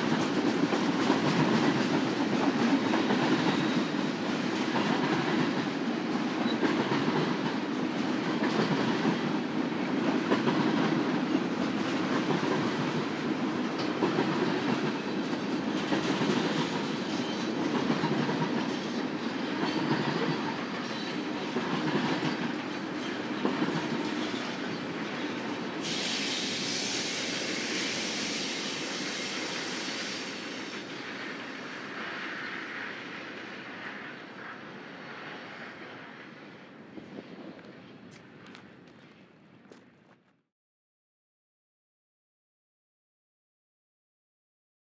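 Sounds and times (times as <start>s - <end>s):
train wheels clattering over joints: 13.6s - 27.2s
high hiss: 25.8s - 34.1s.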